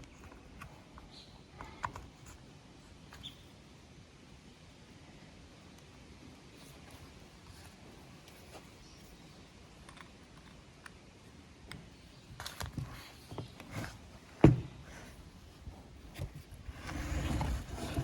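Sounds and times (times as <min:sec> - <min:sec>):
scraping or rustling: 0:16.1 - 0:18.0.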